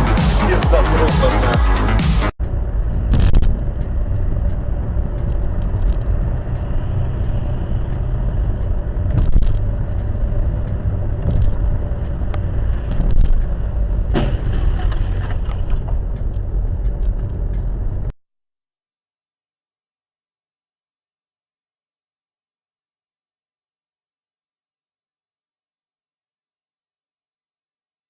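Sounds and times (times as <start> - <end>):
car driving rumble: 0.0 - 18.1.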